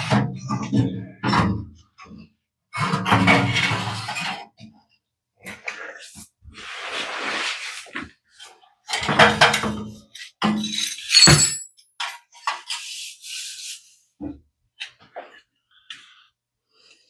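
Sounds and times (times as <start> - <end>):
metal parts scraping: 10.7 - 11.7.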